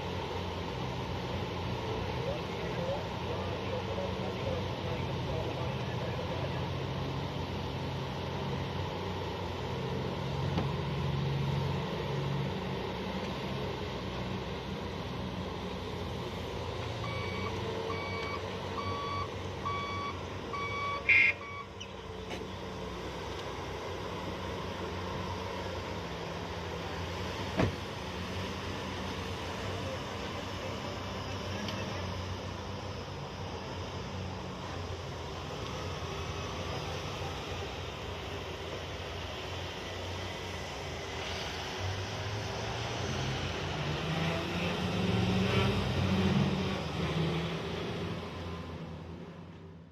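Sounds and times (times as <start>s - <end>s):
reversing alarm beeping: 17.0s - 21.9s.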